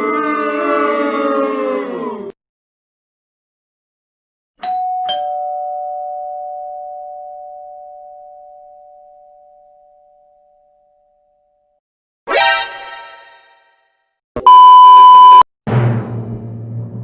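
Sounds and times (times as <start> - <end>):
two-note doorbell chime: 4.6 - 9.4.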